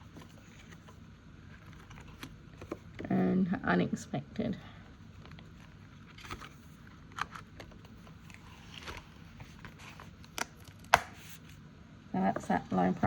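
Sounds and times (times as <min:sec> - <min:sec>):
paper envelopes rustling: 0:00.0 - 0:03.0, 0:05.0 - 0:11.6.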